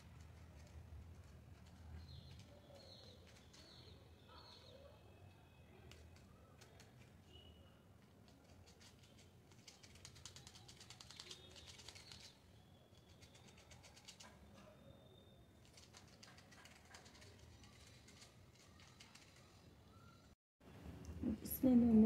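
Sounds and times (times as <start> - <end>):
fast ticking bird chatter: 8.7 - 12.4, 13.0 - 14.4, 15.7 - 19.6.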